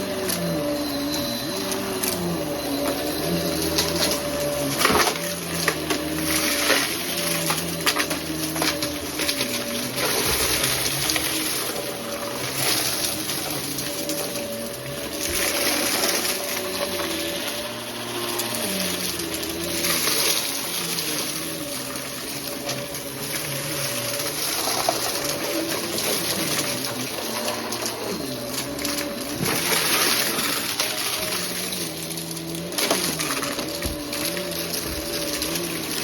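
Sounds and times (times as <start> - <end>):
vacuum cleaner running: 0.0 - 36.0.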